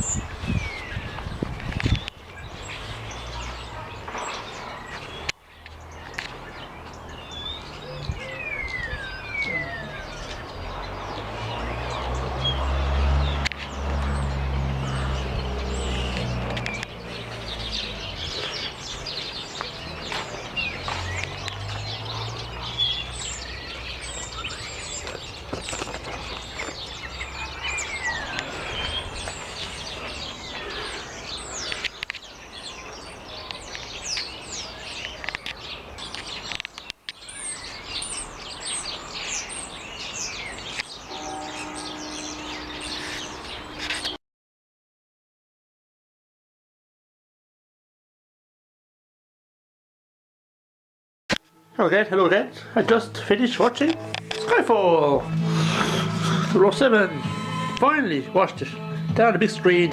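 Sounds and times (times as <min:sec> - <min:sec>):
birds chirping: 0:00.0 - 0:44.2, 0:51.3 - 0:59.9
low rumble: 0:55.2 - 0:57.8.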